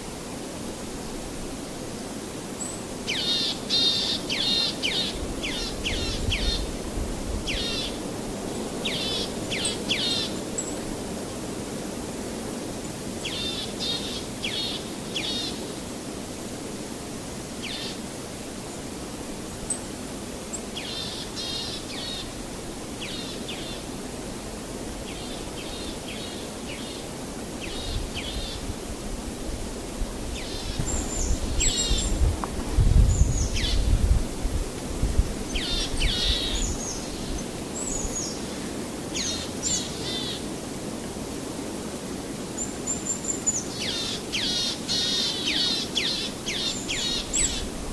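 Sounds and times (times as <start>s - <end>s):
steady background hiss: 0.0s - 47.9s
small birds chirping: 30.4s - 32.3s.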